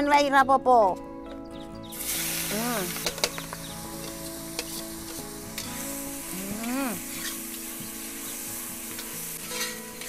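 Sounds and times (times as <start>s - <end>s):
food sizzling in hot oil: 1.9s - 10.0s
metal spatula stirring in wok: 8.9s - 10.0s.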